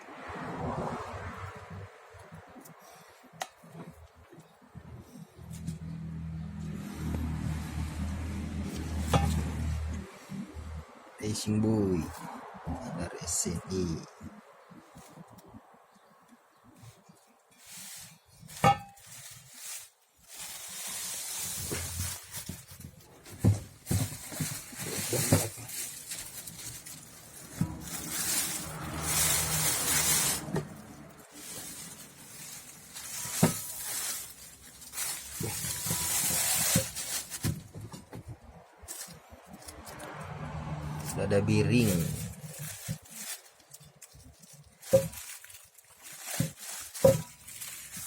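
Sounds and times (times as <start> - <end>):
packaging rustling and crinkling: 16.8 - 39.9, 41.6 - 48.0.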